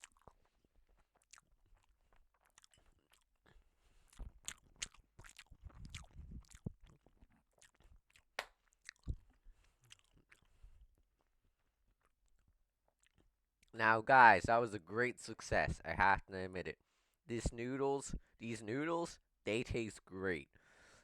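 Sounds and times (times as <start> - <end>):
person chewing noodles: 0.0 - 13.7.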